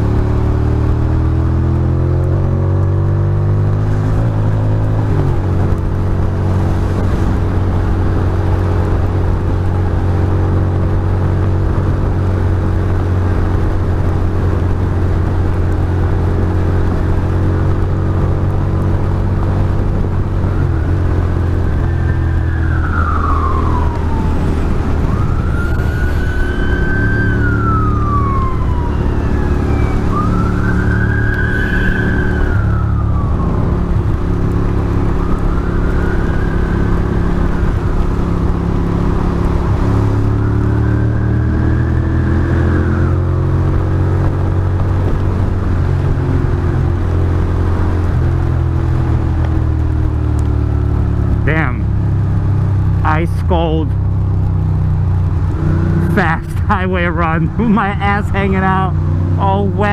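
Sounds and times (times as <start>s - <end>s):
motorcycle engine cruising: 0.0s - 59.9s
siren wailing: 20.4s - 39.2s, 39.9s - 43.5s.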